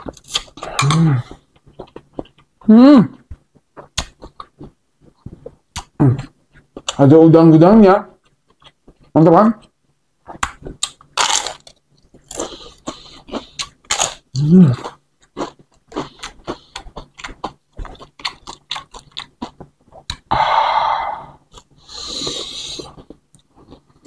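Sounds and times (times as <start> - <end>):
crunching crispy food: 10.4 - 20.2.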